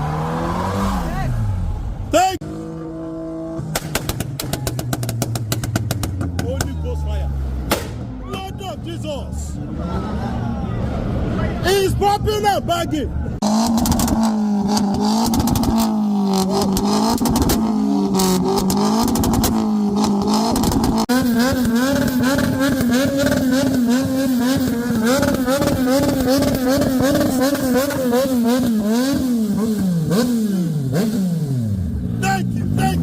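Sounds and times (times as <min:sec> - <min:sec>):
car engine revving: 0:00.0 - 0:08.1, 0:13.3 - 0:33.0
exhaust pops and bangs: 0:03.6 - 0:06.8, 0:07.6 - 0:08.1, 0:13.7 - 0:17.7, 0:18.6 - 0:19.7.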